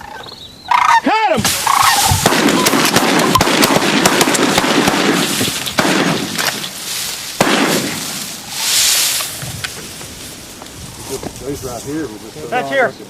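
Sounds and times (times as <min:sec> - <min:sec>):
shotgun cracks: 0:01.5 - 0:06.8, 0:07.4 - 0:08.2.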